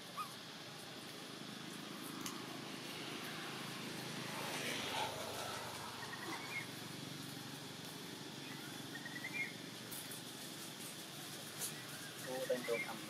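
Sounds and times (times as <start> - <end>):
outdoor background hiss: 0.0 - 13.0
faint bird chirps: 8.4 - 9.6.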